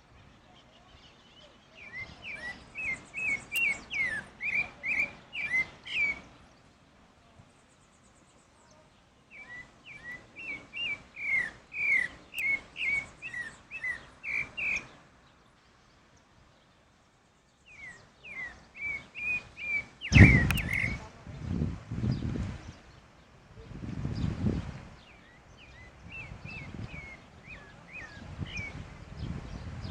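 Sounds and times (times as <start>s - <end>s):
thrush singing whistled notes: 1.0s - 6.6s, 9.3s - 15.1s, 17.5s - 21.1s, 25.0s - 29.8s.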